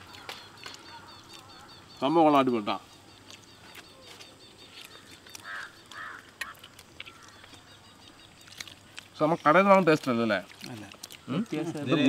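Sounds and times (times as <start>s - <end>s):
people chewing bread: 0.0s - 12.0s
small mouth clicks: 3.2s - 9.2s, 10.4s - 11.6s.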